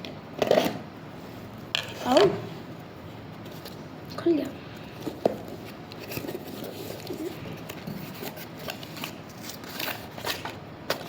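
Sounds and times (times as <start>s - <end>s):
packaging rustling and crinkling: 5.0s - 11.0s.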